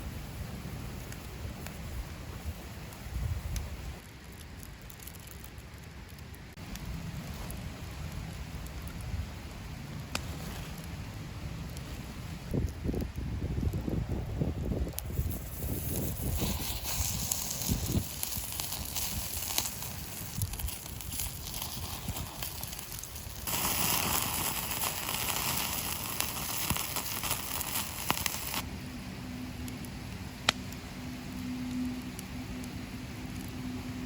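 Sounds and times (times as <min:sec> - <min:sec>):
wood fire crackling: 0:00.0 - 0:34.0
food sizzling: 0:15.1 - 0:28.6
low steady hum: 0:28.6 - 0:34.0.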